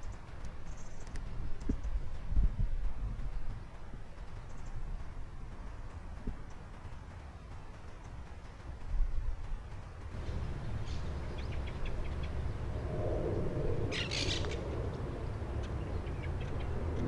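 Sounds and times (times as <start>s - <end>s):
steady low rumble: 0.0s - 17.0s
low hooting bird call: 13.4s - 14.7s.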